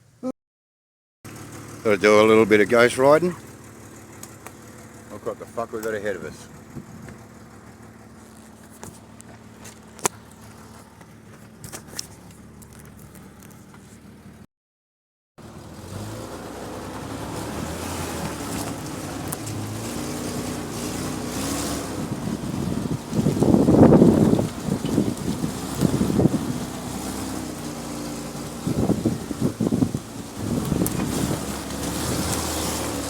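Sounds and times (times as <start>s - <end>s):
car engine idling: 1.3s - 14.4s, 15.4s - 33.0s
engine revving under load: 15.4s - 33.0s.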